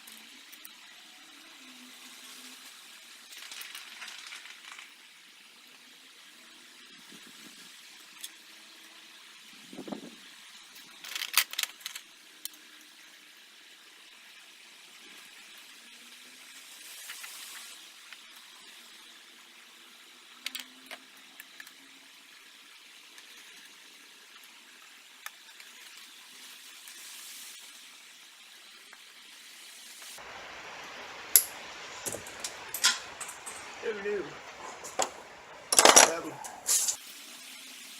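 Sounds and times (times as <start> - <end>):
steady hiss: 0.0 - 37.9
sharp clicks and light clatter: 31.4 - 33.8.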